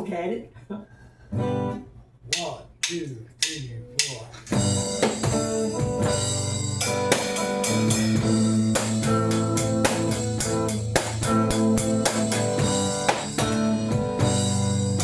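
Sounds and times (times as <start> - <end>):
guitar: 1.1 - 15.0
drum kit steady beat: 2.3 - 15.0
bass guitar: 3.8 - 15.0.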